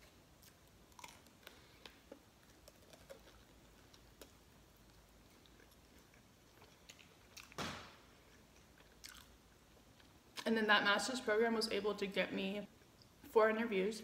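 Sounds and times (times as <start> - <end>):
chewing a chicken wing: 0.0 - 10.2.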